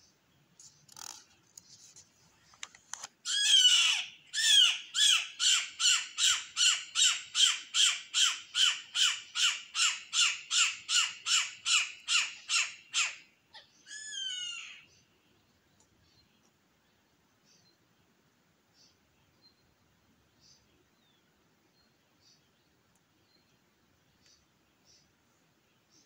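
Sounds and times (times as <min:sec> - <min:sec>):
bird calling with falling notes: 0:03.3 - 0:14.9.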